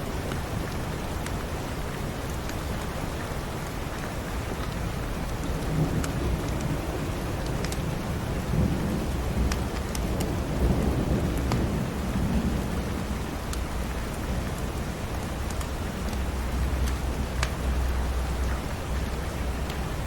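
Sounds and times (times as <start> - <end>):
heavy rain: 0.0 - 20.0
wood fire crackling: 0.2 - 20.0
low rumble of thunder: 4.9 - 20.0.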